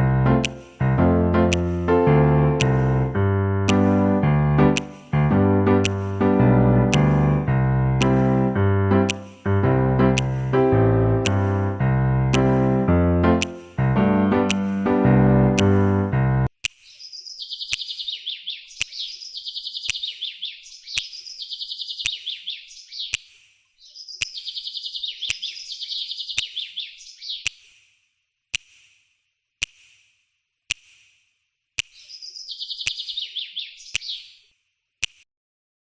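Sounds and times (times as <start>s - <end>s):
sharp clicks: 0.3s - 14.9s, 15.6s - 17.0s, 17.6s - 19.2s, 19.8s - 21.3s, 21.9s - 22.4s, 24.2s - 24.6s, 31.8s - 33.2s, 33.8s - 34.2s, 35.0s - 35.3s
small bird chirping trills: 16.6s - 27.8s, 31.8s - 34.6s.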